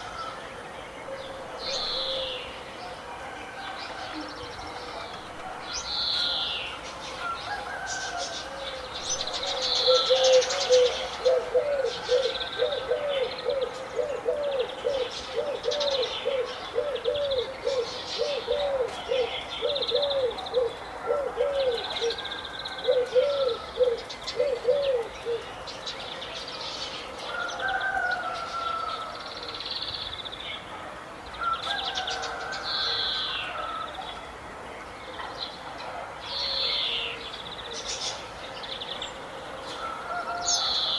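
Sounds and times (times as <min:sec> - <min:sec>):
bird hooting: 0:09.6 - 0:22.2, 0:22.9 - 0:25.4.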